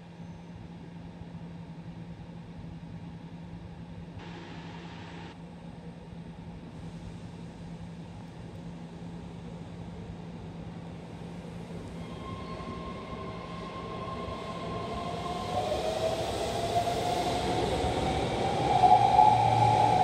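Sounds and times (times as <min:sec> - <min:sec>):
electric train arriving: 0:11.3 - 0:20.0.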